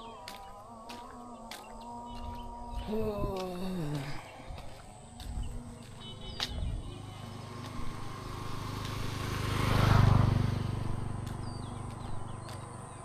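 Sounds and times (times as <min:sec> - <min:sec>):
small motor vehicle passing: 0:04.1 - 0:13.0.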